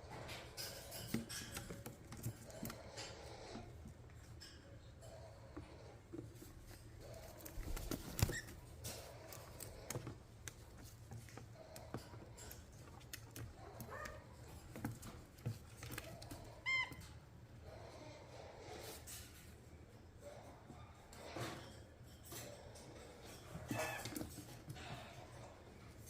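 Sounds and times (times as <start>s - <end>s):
beak and feet clicks and scratches: 0.0s - 26.0s
parrots chattering: 15.9s - 17.2s, 22.8s - 25.1s.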